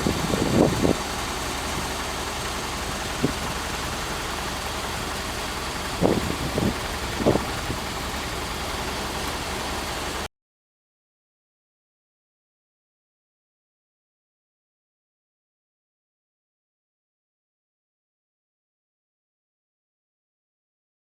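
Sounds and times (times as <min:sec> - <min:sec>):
vehicle engine idling: 0:00.0 - 0:10.3.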